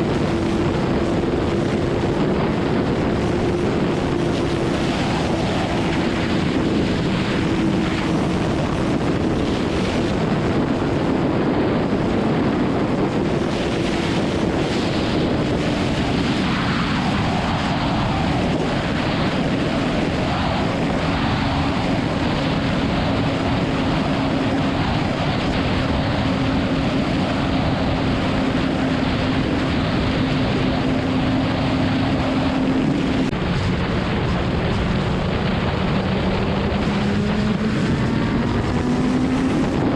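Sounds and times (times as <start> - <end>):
motorcycle engine cruising: 0.0 - 39.9
wind rush on microphone: 0.0 - 39.9.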